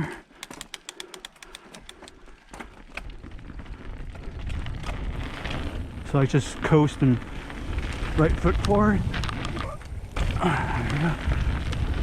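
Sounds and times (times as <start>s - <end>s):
bike drivetrain clicks: 0.0s - 12.0s
wind: 0.0s - 12.0s
tyres rumbling on dirt: 4.5s - 12.0s.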